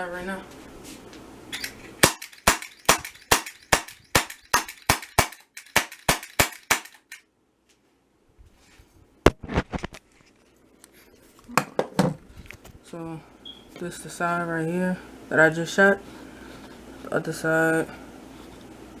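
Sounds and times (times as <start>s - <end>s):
bb pistol shots: 2.0s - 7.2s.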